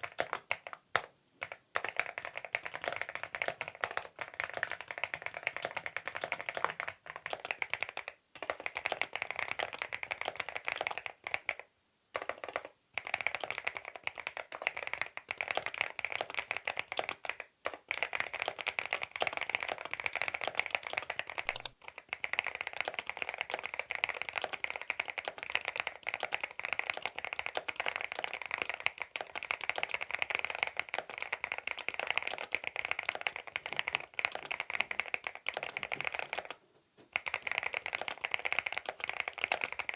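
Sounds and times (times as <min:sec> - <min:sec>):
fast mechanical keyboard typing: 0:21.5 - 0:21.7.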